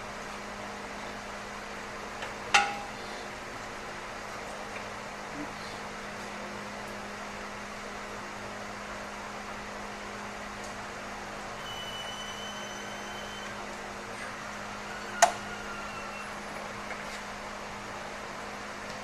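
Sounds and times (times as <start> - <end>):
shop background hum: 0.0 - 19.0
thin high squeal: 11.6 - 13.6, 14.2 - 16.8.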